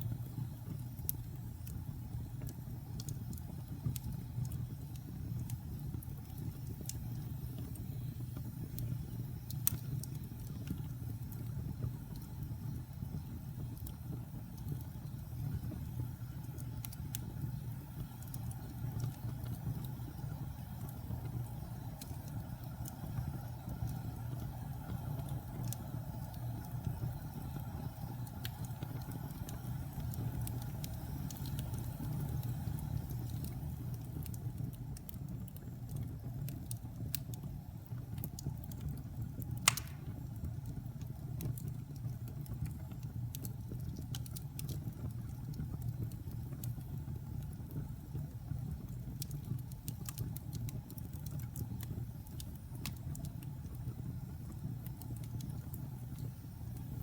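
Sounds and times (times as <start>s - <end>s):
fire crackling and popping: 0.0s - 57.0s
fire flames roaring: 0.0s - 57.0s.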